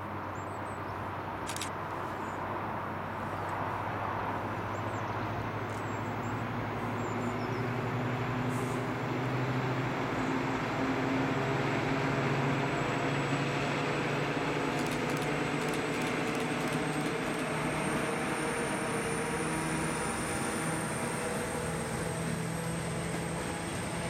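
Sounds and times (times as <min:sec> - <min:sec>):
diesel locomotive engine: 0:00.0 - 0:24.0
wheels rumbling on rails: 0:01.8 - 0:24.0.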